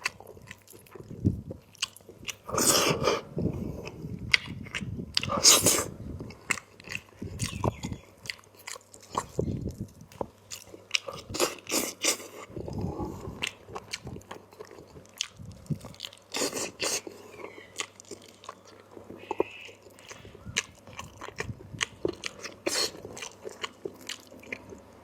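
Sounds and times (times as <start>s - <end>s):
person chewing with crunches: 0.0s - 25.0s
mouth clicks: 7.4s - 8.0s, 19.1s - 20.8s.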